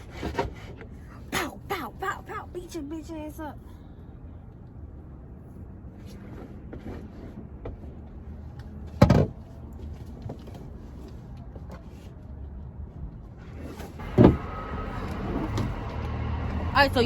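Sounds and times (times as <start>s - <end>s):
low steady rumble: 0.7s - 17.0s.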